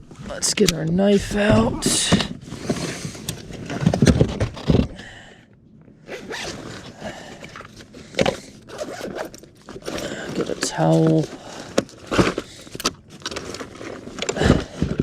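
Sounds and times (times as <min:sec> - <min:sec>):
gear scraping and rustling: 0:00.0 - 0:05.0, 0:06.0 - 0:15.0
zipper being pulled: 0:06.1 - 0:07.0, 0:08.7 - 0:10.0.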